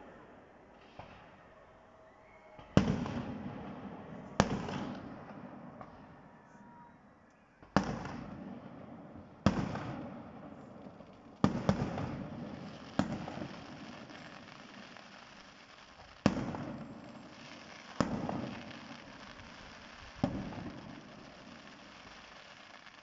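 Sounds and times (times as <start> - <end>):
firework shells bursting: 11.4 - 23.0.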